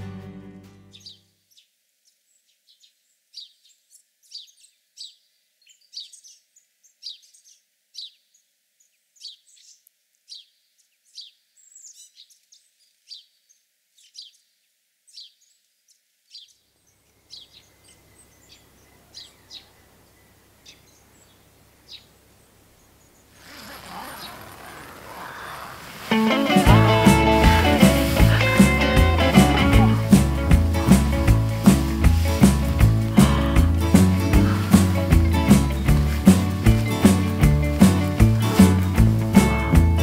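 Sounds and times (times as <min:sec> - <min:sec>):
faint steady hiss: 0:00.0 - 0:40.0
small birds chirping: 0:00.8 - 0:39.6.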